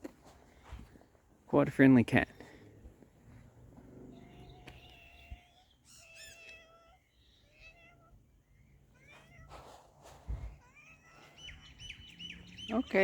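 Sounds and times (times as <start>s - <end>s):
cat meowing faintly: 4.1s - 8.3s, 8.9s - 11.6s
rising bird chirps: 11.0s - 13.0s.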